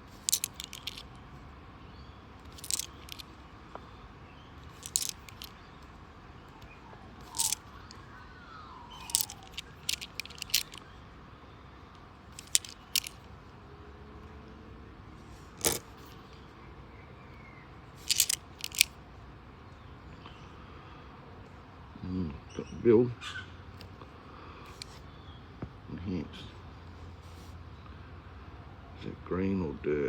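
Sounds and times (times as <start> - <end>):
coins clicking together: 0.1 - 1.1, 2.5 - 3.2, 4.7 - 5.5, 7.2 - 7.6, 9.0 - 10.8, 12.4 - 13.2, 18.0 - 18.9.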